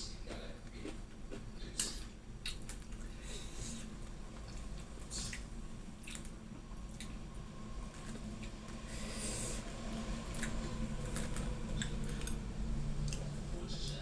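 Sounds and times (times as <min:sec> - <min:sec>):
steady low hum: 0:00.0 - 0:14.0
wet squishy chewing: 0:02.4 - 0:07.2, 0:10.0 - 0:13.4.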